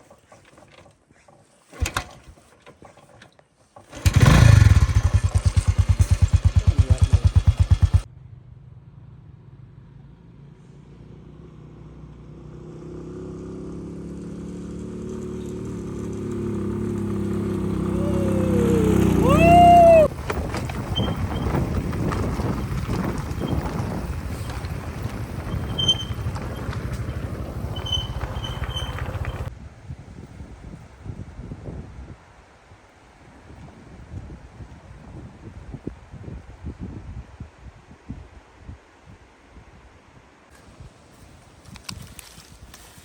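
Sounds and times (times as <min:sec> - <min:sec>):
small engine fast chugging: 0:03.8 - 0:08.1, 0:16.8 - 0:29.5
engine drone: 0:03.9 - 0:10.1, 0:13.2 - 0:29.5.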